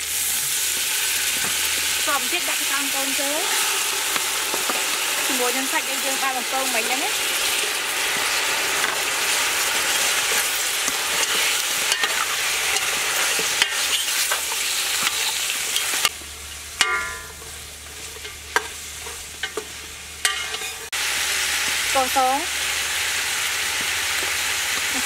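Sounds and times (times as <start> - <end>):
meat sizzling in a pot: 0.0 - 25.0
metal utensil scraping a pot: 7.4 - 16.1, 20.2 - 20.9.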